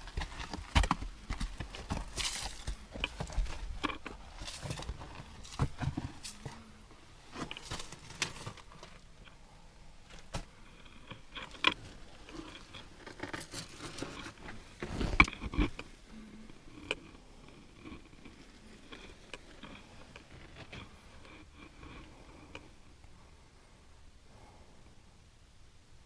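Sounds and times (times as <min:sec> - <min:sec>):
footsteps: 0:00.0 - 0:06.6
rustling and knocks: 0:00.0 - 0:09.1.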